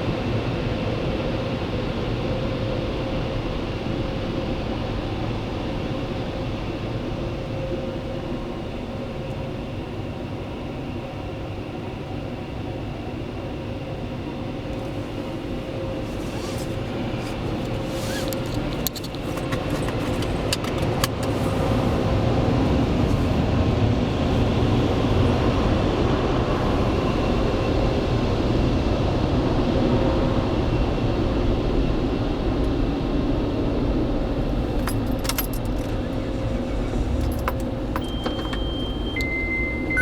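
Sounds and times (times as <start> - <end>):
car wash machine running: 14.8 - 25.8, 34.5 - 40.0
sharp clicks and knocks: 17.2 - 21.3, 36.9 - 38.9.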